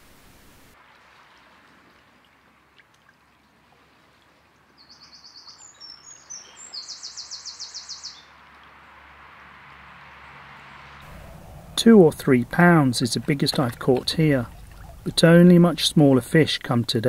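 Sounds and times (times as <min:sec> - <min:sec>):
shallow stream rushing: 0:00.0 - 0:04.8, 0:08.1 - 0:17.0
songbird trilling: 0:04.8 - 0:08.3.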